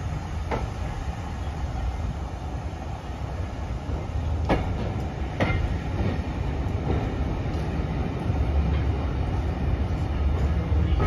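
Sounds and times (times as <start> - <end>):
railway coach rumble: 0.0 - 11.0
wheel clacks over rail joint: 4.4 - 7.7.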